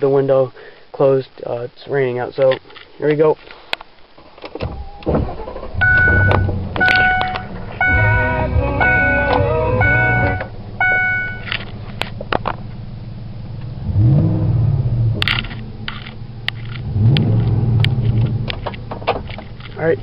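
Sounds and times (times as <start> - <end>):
truck engine idling and revving: 5.3 - 20.0.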